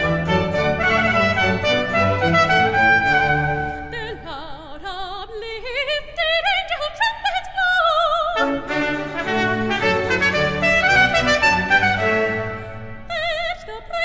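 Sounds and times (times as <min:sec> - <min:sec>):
symphony orchestra playing: 0:00.0 - 0:03.9, 0:08.4 - 0:13.3
operatic soprano singing: 0:02.2 - 0:14.0.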